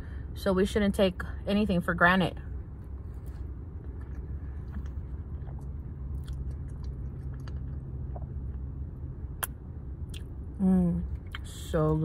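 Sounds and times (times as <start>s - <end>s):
steady low hum: 0.0s - 12.0s
person chewing and slurping: 3.2s - 8.6s
wet mouth clicks and smacks: 3.9s - 8.6s, 9.4s - 10.3s.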